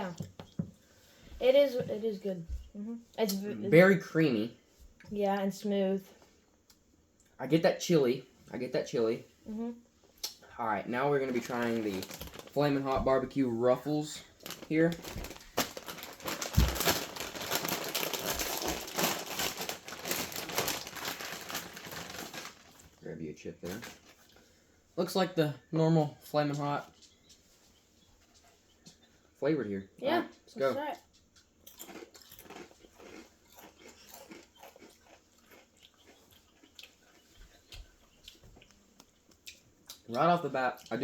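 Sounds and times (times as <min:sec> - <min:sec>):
chip bag crinkling: 0:11.0 - 0:23.0, 0:23.6 - 0:24.4, 0:31.8 - 0:36.7.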